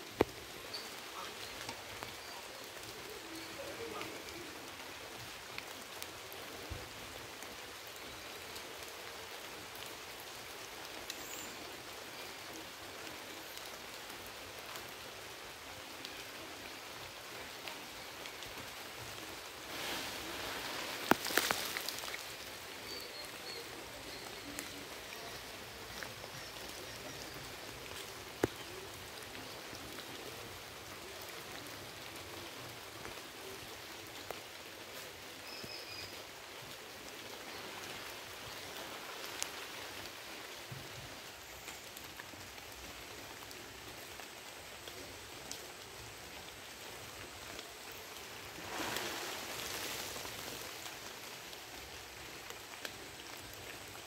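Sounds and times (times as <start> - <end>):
light rain on leaves: 0.0 - 54.0
rustling: 19.0 - 22.6, 48.2 - 51.1.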